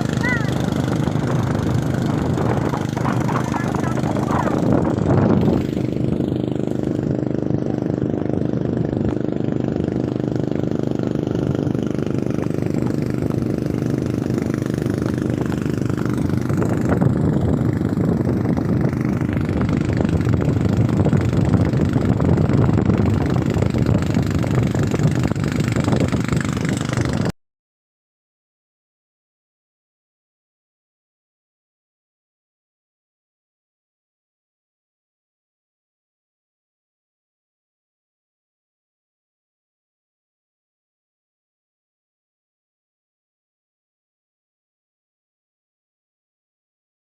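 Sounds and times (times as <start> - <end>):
water noise: 0.0 - 27.3
watercraft engine running: 0.0 - 27.3
wind: 0.0 - 27.4.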